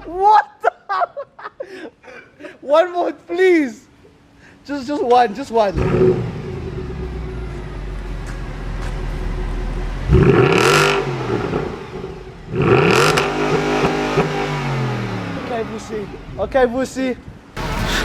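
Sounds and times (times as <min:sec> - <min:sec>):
car engine idling and revving: 0:05.7 - 0:16.4, 0:17.5 - 0:18.0.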